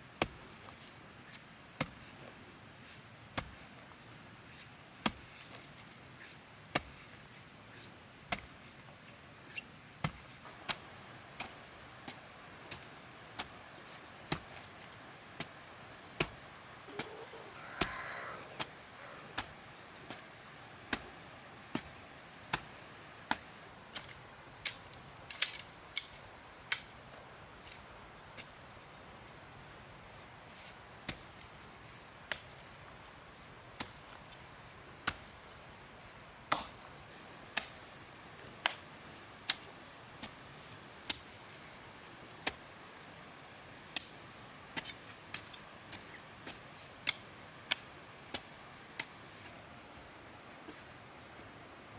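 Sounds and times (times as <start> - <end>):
hand tool chopping: 23.3 - 26.9, 36.5 - 36.8.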